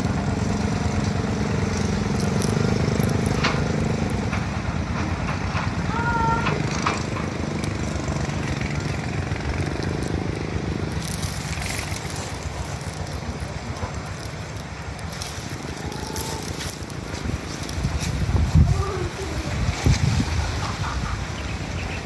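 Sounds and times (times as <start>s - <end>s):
engine-like hum: 0.0s - 22.0s
wind noise: 10.7s - 22.0s.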